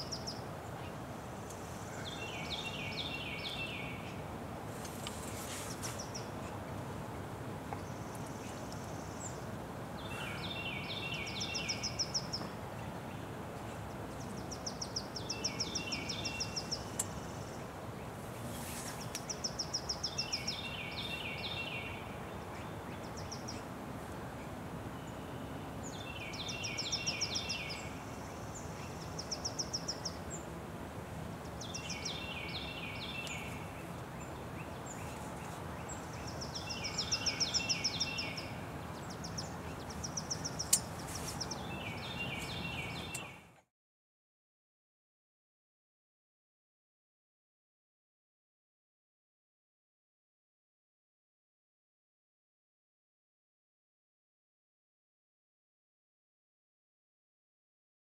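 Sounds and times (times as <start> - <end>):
bird singing a trill: 0.0 - 0.4, 2.0 - 4.2, 10.0 - 12.4, 14.2 - 17.6, 19.2 - 23.7, 24.9 - 30.5, 31.6 - 43.6
background hiss: 0.0 - 43.5.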